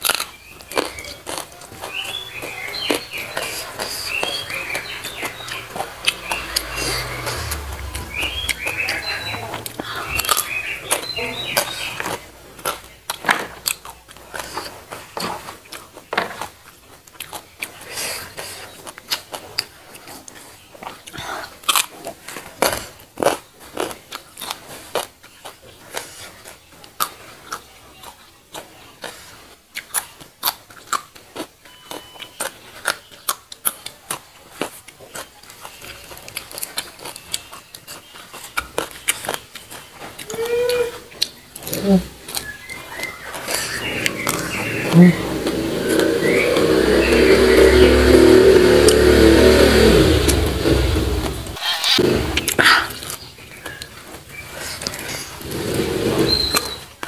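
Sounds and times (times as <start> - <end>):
crisp crunching and chewing: 0.0 - 7.8, 10.2 - 46.8.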